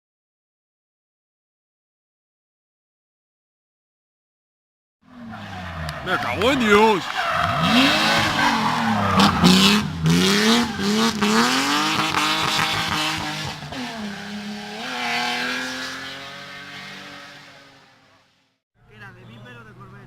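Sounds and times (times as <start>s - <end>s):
race car engine revving: 5.1s - 18.3s.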